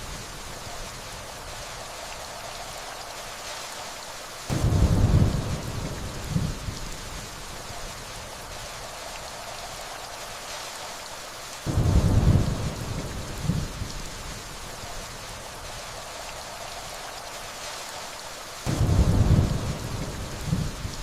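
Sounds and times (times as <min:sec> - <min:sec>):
rainfall hissing: 0:00.0 - 0:21.0
distant thunder rumble: 0:04.5 - 0:07.3, 0:11.7 - 0:14.5, 0:18.7 - 0:21.0.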